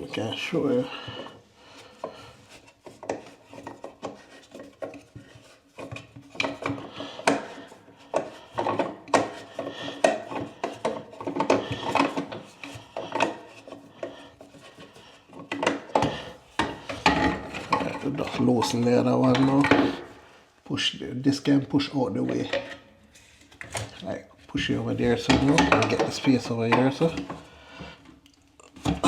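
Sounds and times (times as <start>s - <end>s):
wrench scraping and clicking on nut: 1.2s - 20.2s.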